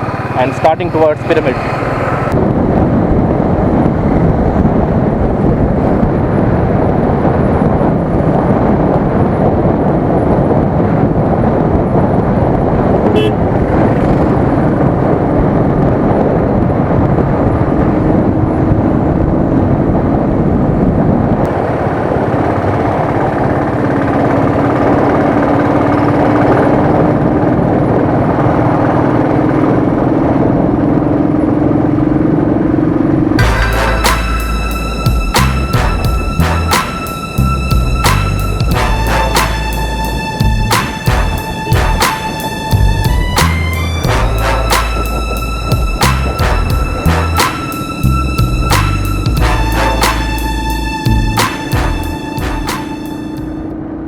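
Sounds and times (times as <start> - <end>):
motorcycle engine running: 0.0 - 8.4, 37.7 - 47.7
wind rush: 0.0 - 54.0
steady low tone: 33.3 - 54.0.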